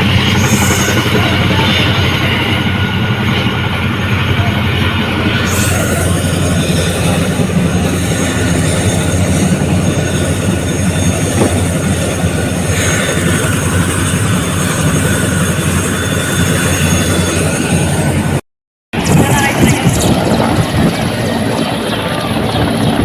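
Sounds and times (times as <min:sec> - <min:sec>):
helicopter rotors beating: 0:00.0 - 0:18.4, 0:19.0 - 0:23.0
thin steady whine: 0:00.0 - 0:18.4.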